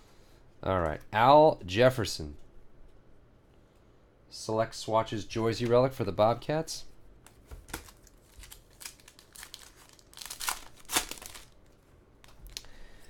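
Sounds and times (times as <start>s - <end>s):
foil wrappers crinkling: 7.5s - 12.8s.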